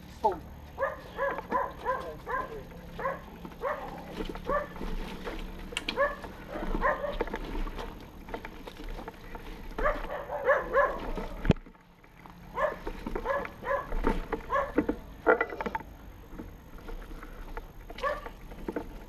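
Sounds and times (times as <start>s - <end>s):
dogs yipping and barking: 0.7s - 8.0s, 9.4s - 11.5s, 12.4s - 14.9s, 17.9s - 18.4s.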